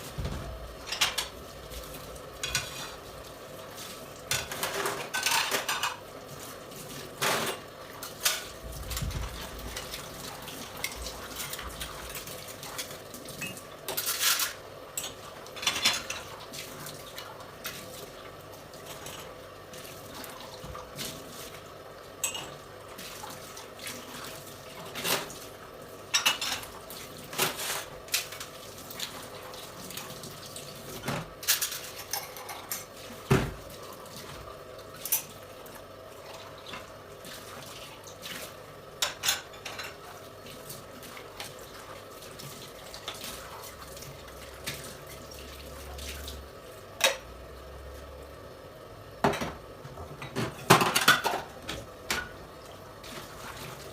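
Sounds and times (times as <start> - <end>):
running water: 0.0 - 53.9
dishes and cutlery clinking: 4.3 - 6.0, 13.4 - 16.3, 22.2 - 22.6, 26.1 - 26.7, 31.0 - 33.4, 39.0 - 40.0, 50.2 - 51.5.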